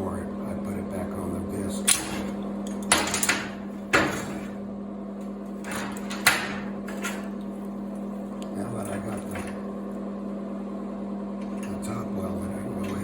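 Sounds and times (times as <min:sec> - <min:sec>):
steady hum: 0:00.0 - 0:13.0
metal knocks and clanks: 0:01.9 - 0:04.6, 0:05.6 - 0:07.4.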